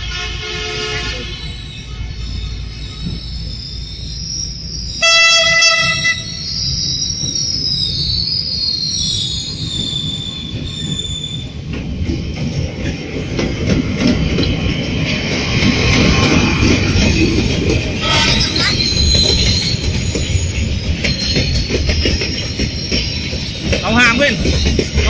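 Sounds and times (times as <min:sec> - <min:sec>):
train horn blast: 0:00.0 - 0:01.4, 0:05.0 - 0:06.4, 0:18.0 - 0:18.5
high wheel squeal: 0:00.0 - 0:11.7, 0:14.8 - 0:24.6
train rumble and clatter: 0:00.0 - 0:25.0.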